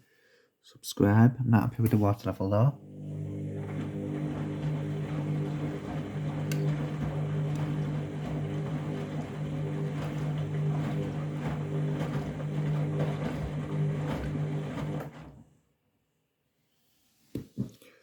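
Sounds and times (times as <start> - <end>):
washing machine motor hum: 2.8 - 15.5.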